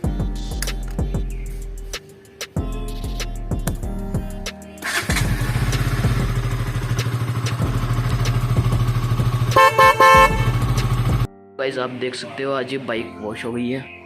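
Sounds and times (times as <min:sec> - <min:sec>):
motorcycle engine idling: 0:04.8 - 0:11.3
motorcycle horn beeps: 0:08.9 - 0:11.2.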